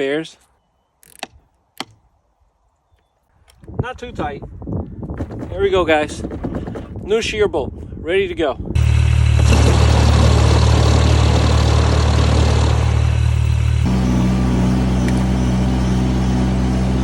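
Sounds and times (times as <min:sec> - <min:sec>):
snowblower engine running: 0:08.8 - 0:17.0.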